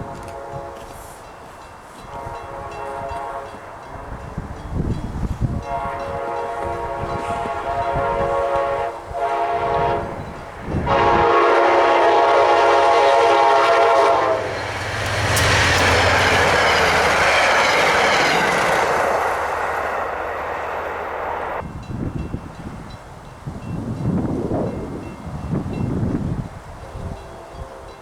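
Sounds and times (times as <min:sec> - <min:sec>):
train horn blasts: 0:00.0 - 0:01.4, 0:02.0 - 0:04.5, 0:05.4 - 0:19.4, 0:26.8 - 0:28.0
train wheels and rushing air: 0:00.0 - 0:26.7.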